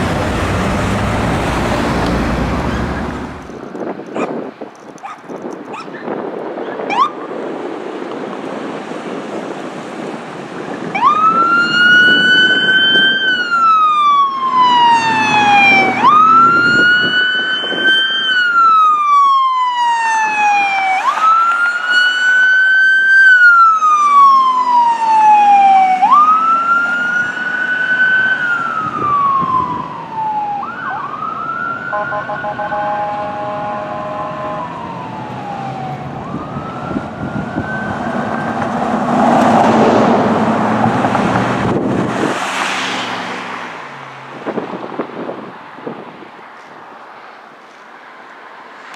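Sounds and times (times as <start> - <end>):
road and engine noise: 0.0 - 48.9
fire truck siren wailing: 6.9 - 7.3, 10.8 - 42.3
steady chord of tones: 31.9 - 34.8.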